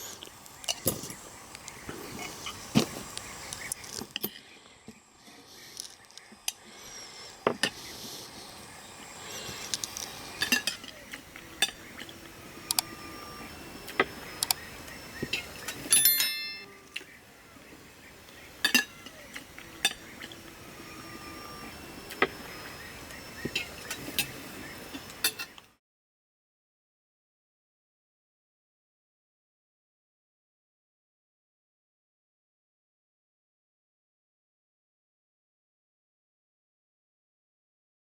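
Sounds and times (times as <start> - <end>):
high-pitched squeal: 6.8 - 25.6
kitchenware clinking: 10.4 - 10.9, 15.7 - 16.7.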